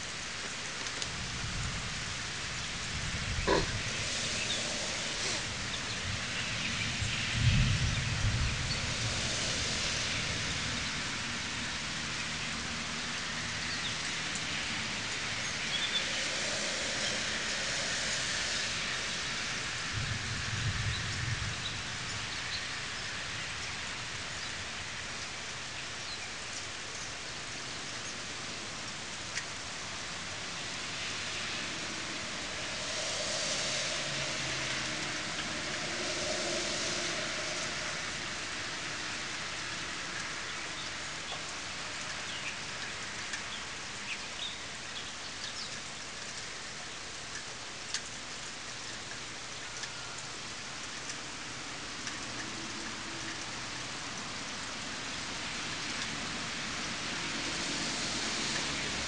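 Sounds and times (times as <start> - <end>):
steady rain falling: 0.0 - 59.0
low rumble: 32.0 - 39.2.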